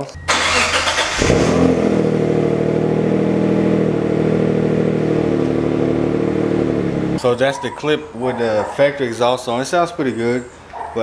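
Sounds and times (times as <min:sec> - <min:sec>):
engine cranking: 0:00.3 - 0:03.0
car engine idling: 0:00.3 - 0:07.2.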